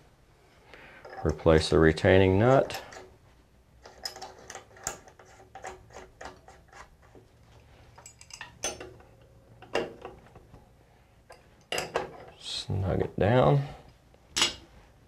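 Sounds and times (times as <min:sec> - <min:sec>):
small metal clicks and clinks: 0:08.0 - 0:09.0.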